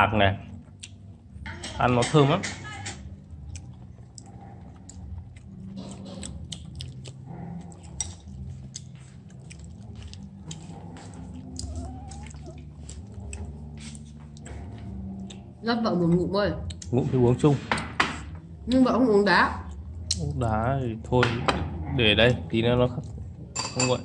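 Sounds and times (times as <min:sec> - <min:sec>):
low steady hum: 0:00.0 - 0:24.0
person chewing crunchy food: 0:03.1 - 0:15.6.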